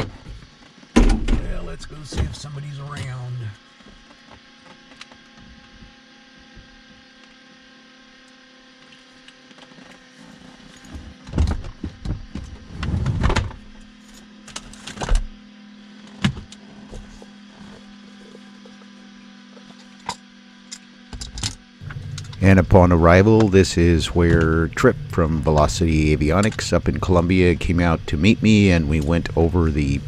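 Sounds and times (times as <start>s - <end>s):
knocks and rattles in aircraft cabin: 21.8s - 30.0s
steady hum of even tones: 21.8s - 30.0s.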